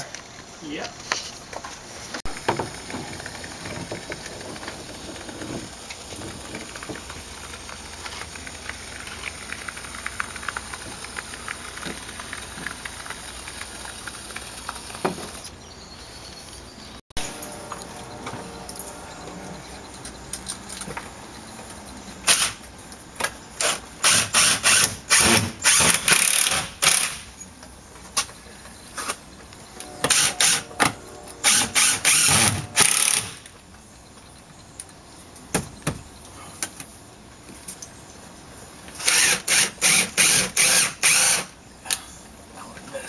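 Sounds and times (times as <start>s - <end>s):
power drill bursts: 23.6s - 27.3s, 30.0s - 33.5s, 39.0s - 41.5s.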